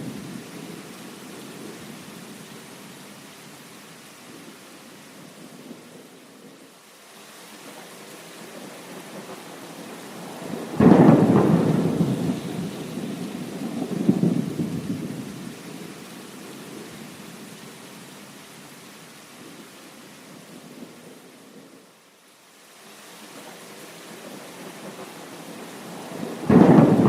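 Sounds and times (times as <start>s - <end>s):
rain falling: 0.0s - 27.0s
thunder rumbling: 8.5s - 15.9s, 24.2s - 27.0s.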